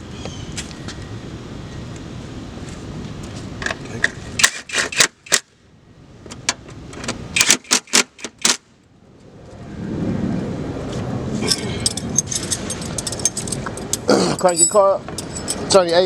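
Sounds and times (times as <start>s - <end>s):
sharp metallic clicks: 4.4s - 5.5s, 7.0s - 8.6s
low background hum: 10.6s - 16.0s.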